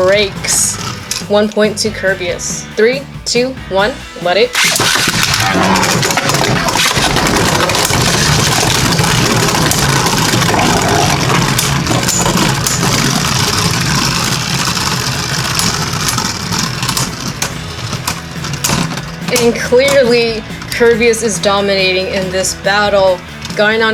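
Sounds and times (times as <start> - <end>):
spinning tops whirring and grinding: 0.0 - 2.7, 4.5 - 23.9
spinning tops clacking: 4.6 - 23.6.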